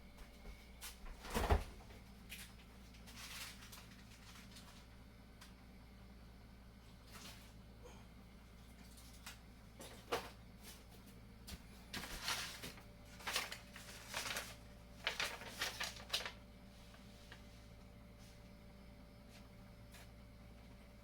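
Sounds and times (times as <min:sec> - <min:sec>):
low steady hum: 0:00.0 - 0:21.0
packages rustling and knocking: 0:11.5 - 0:16.4.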